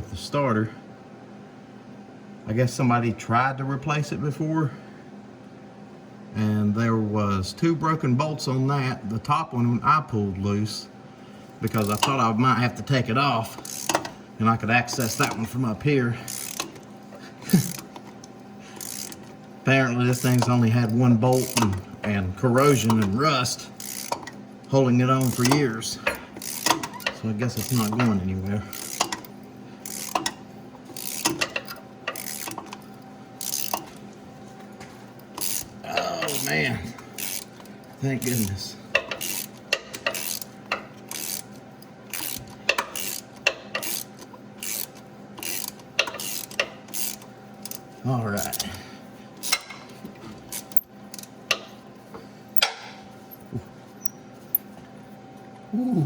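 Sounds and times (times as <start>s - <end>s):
faint steady hum: 0.0s - 56.0s
ratchet wrench clicking: 11.7s - 12.2s, 13.6s - 14.2s, 14.9s - 15.4s, 16.3s - 16.8s, 18.8s - 19.3s, 20.1s - 21.8s, 23.8s - 24.4s, 25.2s - 25.7s, 26.4s - 33.9s, 35.4s - 36.5s, 37.2s - 38.4s, 39.0s - 41.5s, 42.1s - 47.8s.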